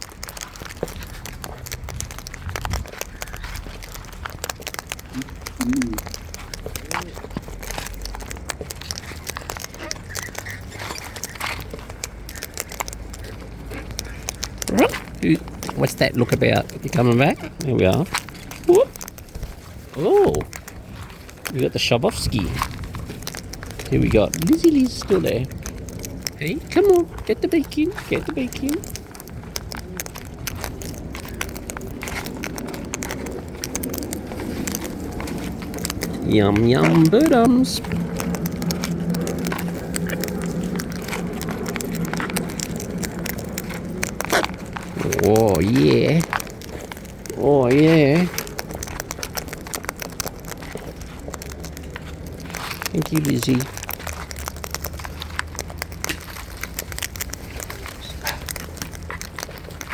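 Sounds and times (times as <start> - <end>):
cockatoo cracking seed: 0.0 - 59.9
low rumble: 22.1 - 24.8, 25.4 - 45.3.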